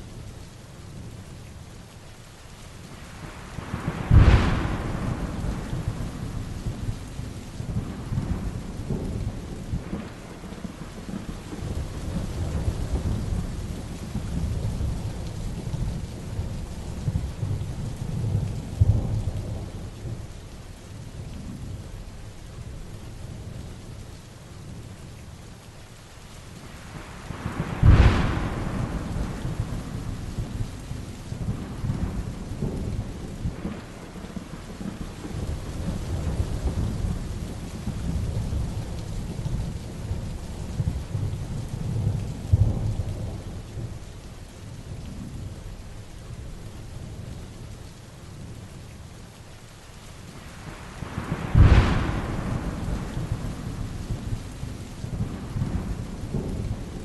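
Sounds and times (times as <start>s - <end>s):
heavy rain: 0.0s - 57.0s
thunder cracking and rumbling: 3.3s - 20.3s, 26.8s - 44.0s, 50.4s - 57.0s.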